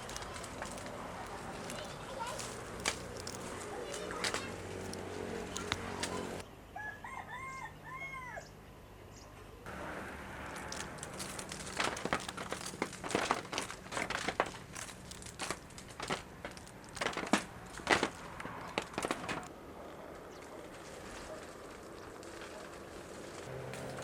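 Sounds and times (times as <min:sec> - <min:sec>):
sharp snaps clicks and rustles: 0:00.0 - 0:06.4, 0:10.4 - 0:19.5
rooster crowing: 0:06.8 - 0:08.5.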